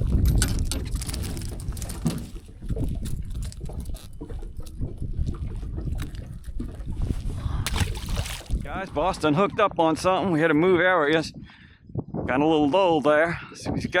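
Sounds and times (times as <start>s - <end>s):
wind rumble on microphone: 0.0s - 14.0s
water lapping against boat hull: 0.5s - 9.6s.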